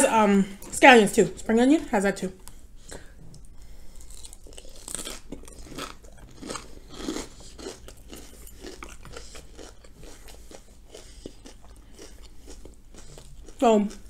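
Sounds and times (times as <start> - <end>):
crunchy chewing: 2.4 - 14.0.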